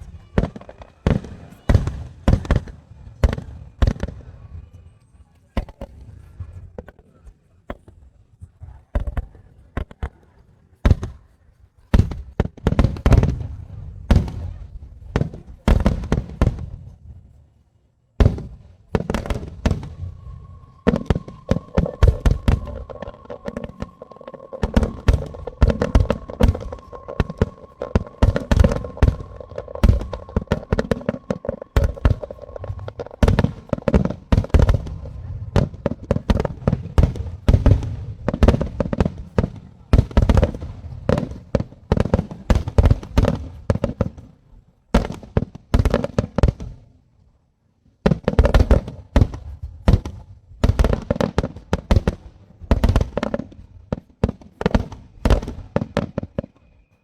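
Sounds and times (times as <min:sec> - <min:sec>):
fireworks bangs and crackling: 0:00.0 - 0:04.6, 0:11.9 - 0:17.0, 0:18.2 - 0:44.4, 0:45.0 - 0:46.8, 0:48.1 - 0:56.8
faint steady tone: 0:18.8 - 0:43.7, 0:55.0 - 0:57.0.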